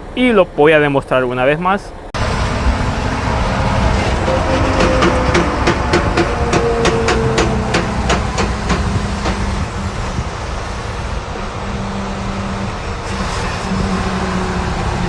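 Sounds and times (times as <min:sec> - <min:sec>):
truck engine drone: 0:00.0 - 0:15.0
rhythmic clacking: 0:04.0 - 0:09.8.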